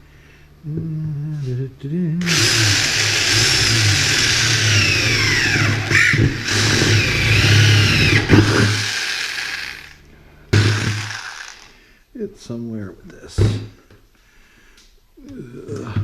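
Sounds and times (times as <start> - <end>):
reciprocating saw cutting door: 2.2 - 10.0, 10.6 - 11.6.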